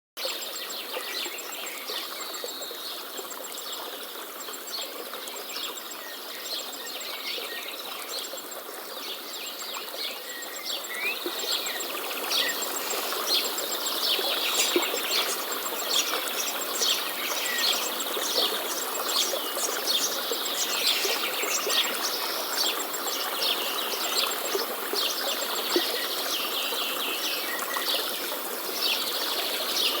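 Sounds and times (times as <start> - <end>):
steady background hiss: 3.5 - 30.0
birds chirping and trilling: 10.8 - 22.3.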